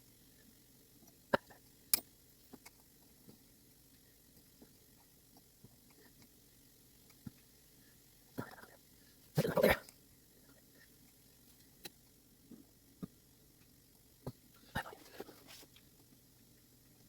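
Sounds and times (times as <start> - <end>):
small clicks of clock parts: 0.9 - 6.4, 7.0 - 7.5, 10.8 - 14.4.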